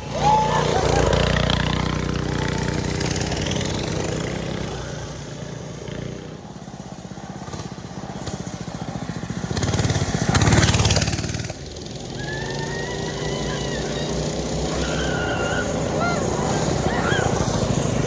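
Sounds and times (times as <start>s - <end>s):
small engine passing by: 0.0s - 18.0s.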